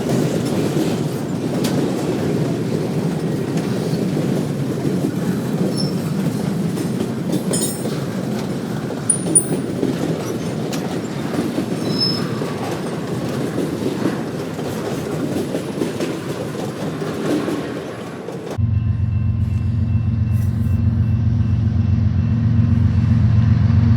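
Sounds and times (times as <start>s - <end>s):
freight train wheels rumbling on rails: 0.0s - 23.9s
high wheel squeaks: 5.6s - 6.5s, 9.1s - 13.3s.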